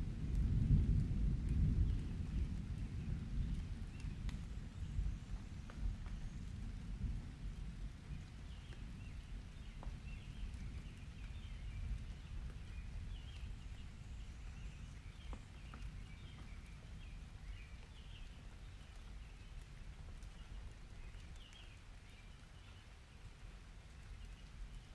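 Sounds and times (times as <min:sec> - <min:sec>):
faint clicks: 0:03.9 - 0:04.5
small birds chirping: 0:08.1 - 0:23.3.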